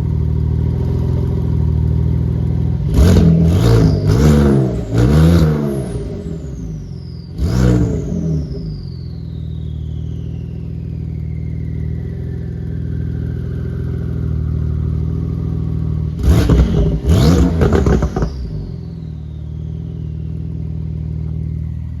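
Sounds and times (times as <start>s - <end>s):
car engine idling and revving: 0.0s - 22.0s
thin high whistle: 3.7s - 13.2s, 18.2s - 22.0s.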